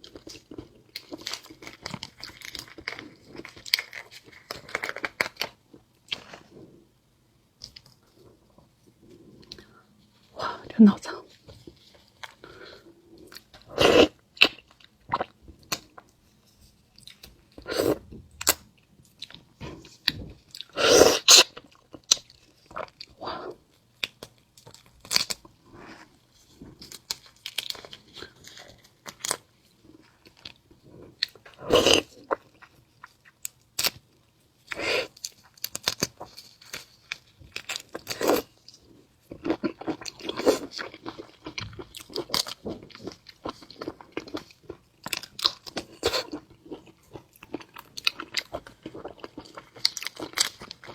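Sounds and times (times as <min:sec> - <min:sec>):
chewing shrimp with wet crunches: 0:35.1 - 0:50.9.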